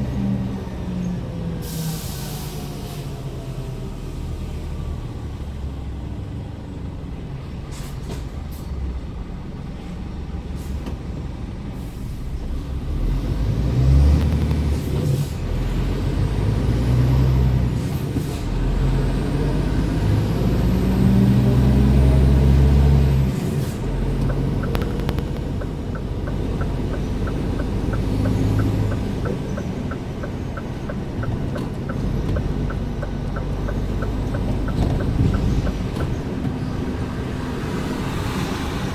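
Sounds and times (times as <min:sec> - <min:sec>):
truck diesel engine running: 0:18.6 - 0:37.6
light regular ticking: 0:24.0 - 0:36.2.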